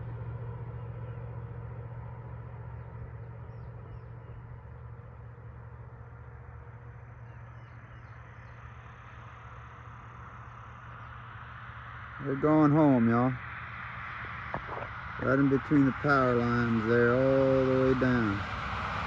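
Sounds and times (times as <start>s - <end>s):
vehicle engine humming: 0.0s - 19.0s
small birds chirping: 2.6s - 5.5s, 6.7s - 9.6s.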